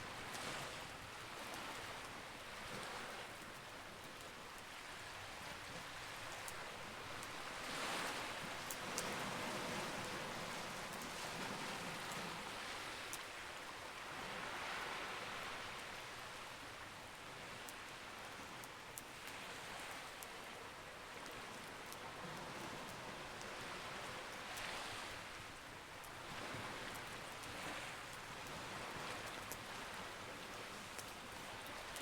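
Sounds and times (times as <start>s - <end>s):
ocean waves: 7.1s - 13.1s, 14.0s - 15.7s, 26.1s - 32.0s.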